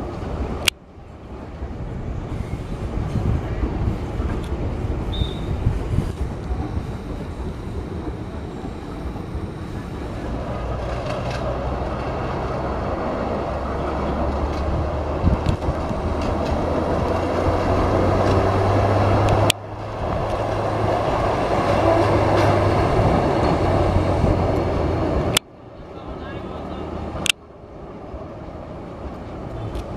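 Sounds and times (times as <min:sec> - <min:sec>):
vehicle engine drone: 0:00.0 - 0:29.9
wheels rumbling on rails: 0:00.0 - 0:29.9.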